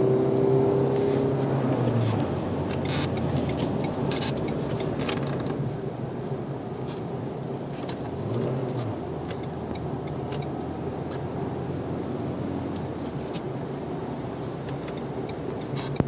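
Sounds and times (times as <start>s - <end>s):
car engine drone inside cabin: 0.0s - 16.0s.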